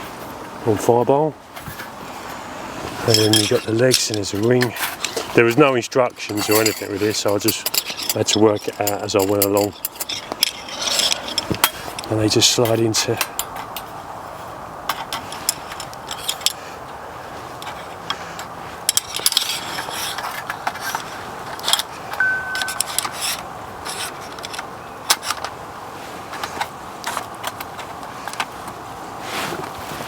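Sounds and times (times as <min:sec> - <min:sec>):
metal stove parts clinking: 0:03.0 - 0:13.9, 0:22.1 - 0:23.5.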